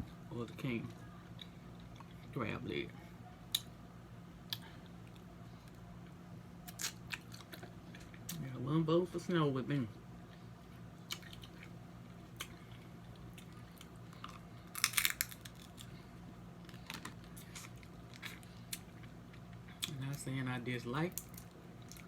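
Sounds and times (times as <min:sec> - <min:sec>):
chewing: 0:11.0 - 0:16.0
crab shell cracking: 0:13.2 - 0:15.9, 0:21.1 - 0:22.0.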